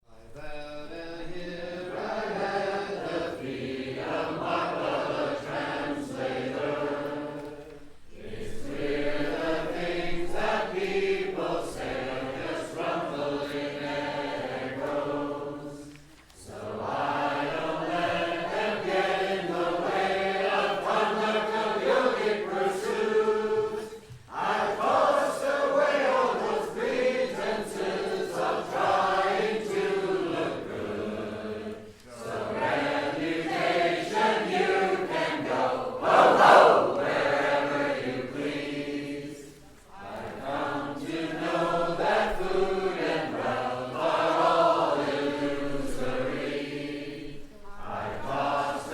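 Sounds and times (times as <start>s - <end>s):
voices chanting a devotional song: 0.0s - 48.9s.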